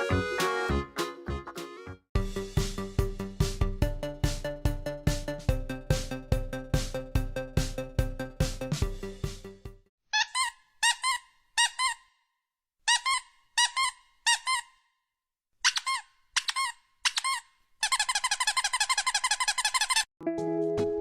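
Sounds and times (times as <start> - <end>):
high-pitched squeaks: 10.2 - 12.1, 12.9 - 14.8, 15.6 - 20.1.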